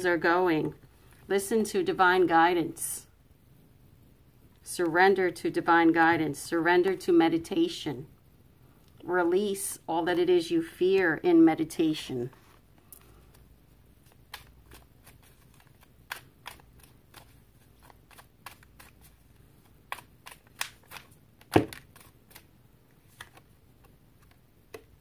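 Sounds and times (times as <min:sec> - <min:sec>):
cards being shuffled: 0:12.2 - 0:25.0.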